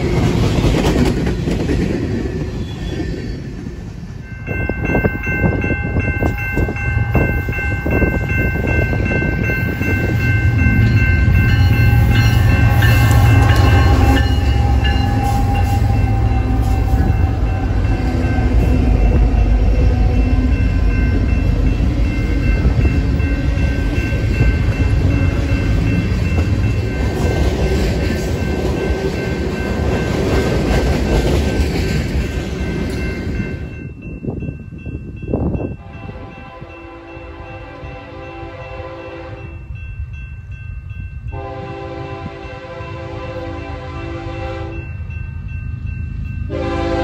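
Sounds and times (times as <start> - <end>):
diesel locomotive rumble: 0.0 - 38.7
high ringing tones: 2.4 - 30.4.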